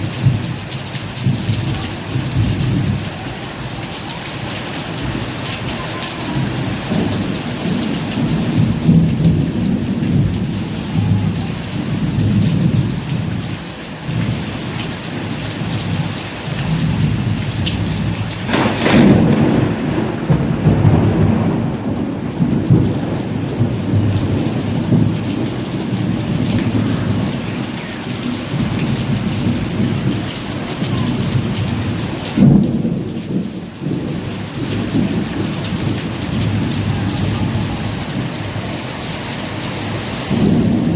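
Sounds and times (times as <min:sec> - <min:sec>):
steady rain: 0:00.0 - 0:40.9
low rumbling thunder: 0:04.5 - 0:14.6, 0:15.2 - 0:39.2, 0:39.8 - 0:40.9
sharp thunderclap: 0:16.6 - 0:27.7, 0:31.4 - 0:36.9, 0:40.3 - 0:40.9.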